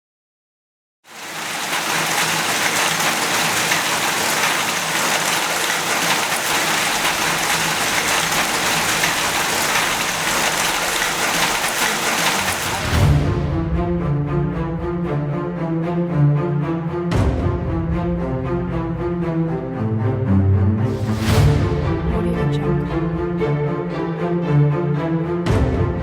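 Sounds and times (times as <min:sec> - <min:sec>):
rain falling: 0:01.1 - 0:13.2.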